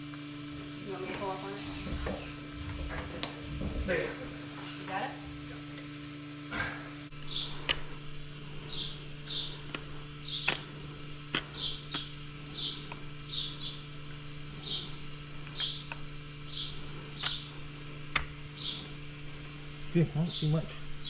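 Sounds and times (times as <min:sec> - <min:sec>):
steady low hum: 0:00.0 - 0:21.0
small bird chirping: 0:07.1 - 0:19.1, 0:20.0 - 0:21.0
sharp clicks: 0:07.2 - 0:08.0, 0:08.7 - 0:18.9.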